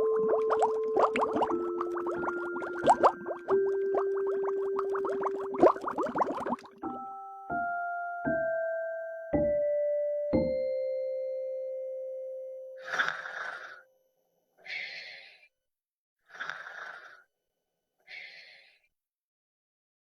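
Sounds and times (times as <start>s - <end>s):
hissing breath-like bursts: 12.8s - 13.8s, 14.6s - 15.5s, 16.3s - 17.3s, 18.1s - 18.9s.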